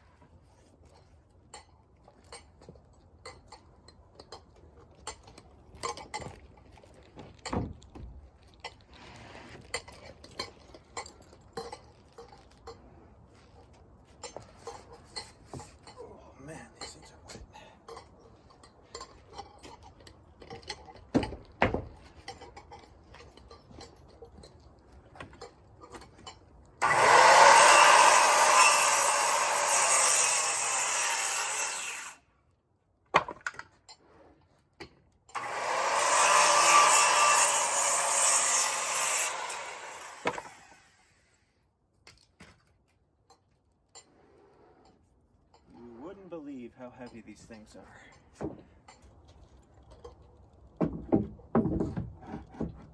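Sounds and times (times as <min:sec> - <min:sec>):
lumber handling knocks and clicks: 0:07.1 - 0:08.2, 0:17.3 - 0:26.4, 0:33.0 - 0:34.0, 0:48.2 - 0:52.9
power saw cutting board: 0:26.8 - 0:32.2, 0:35.3 - 0:41.2.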